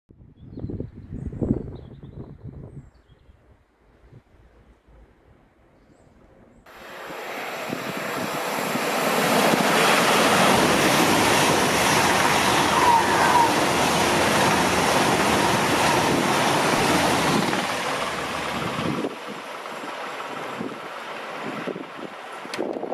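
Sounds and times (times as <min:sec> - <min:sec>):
high-speed train passing: 0:06.7 - 0:22.9.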